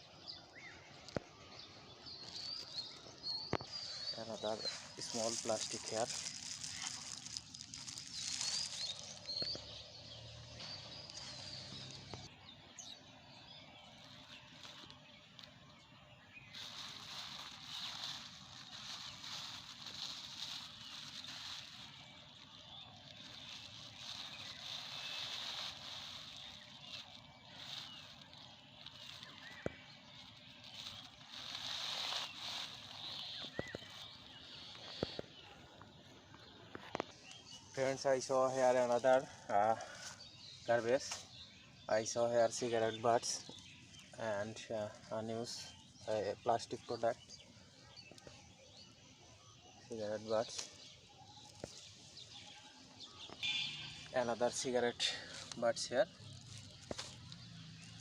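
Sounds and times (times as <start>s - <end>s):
small birds chirping: 0.0s - 58.0s
rustling: 2.1s - 12.3s, 13.7s - 41.4s, 51.4s - 58.0s.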